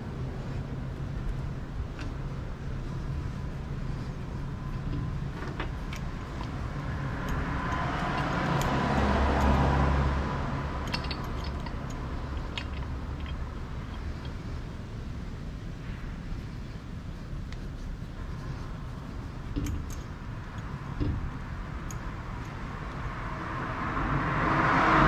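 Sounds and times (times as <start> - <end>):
motor vehicle passing: 0.0 - 15.1, 18.0 - 25.0
steady low hum: 0.0 - 25.0
light metallic clicks: 4.8 - 14.6, 18.5 - 23.0.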